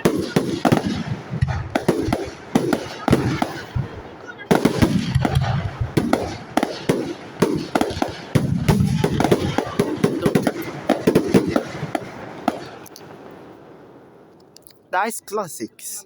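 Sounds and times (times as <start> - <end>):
deep fireworks booms: 0.0 - 14.2
fireworks bangs and crackles: 0.0 - 14.3.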